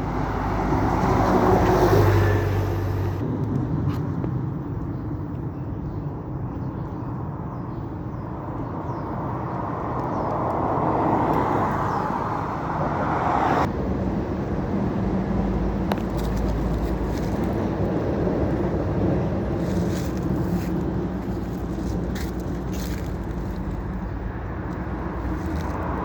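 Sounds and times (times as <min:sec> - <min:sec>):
road traffic rumble: 0:00.0 - 0:26.0
deep rumble: 0:13.6 - 0:26.0.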